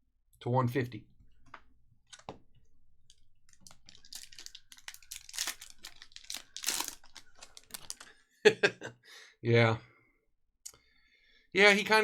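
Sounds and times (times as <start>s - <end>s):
foil wrapper crinkling and tearing: 3.5s - 8.1s.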